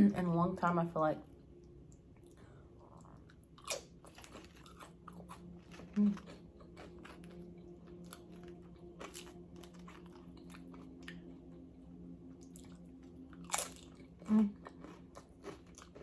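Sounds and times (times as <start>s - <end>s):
faint low hum: 0.0s - 16.0s
wet chewing sounds: 1.6s - 11.6s, 12.4s - 16.0s
chip crunching: 3.0s - 11.2s, 12.4s - 16.0s.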